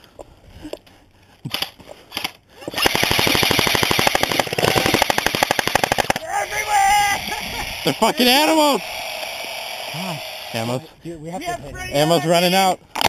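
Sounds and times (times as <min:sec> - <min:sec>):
airsoft rifle firing: 0:01.5 - 0:06.3.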